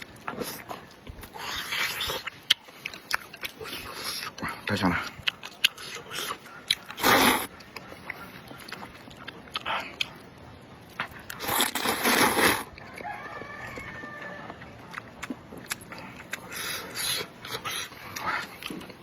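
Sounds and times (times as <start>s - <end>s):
person biting and chewing: 5.1s - 19.0s.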